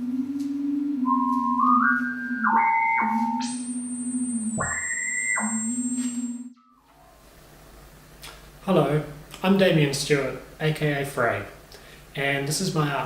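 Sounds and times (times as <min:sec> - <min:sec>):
thin high whistle: 0:00.0 - 0:07.1
high pure synthesizer tones: 0:00.0 - 0:07.2
low wavering synthesizer drone: 0:00.0 - 0:07.2.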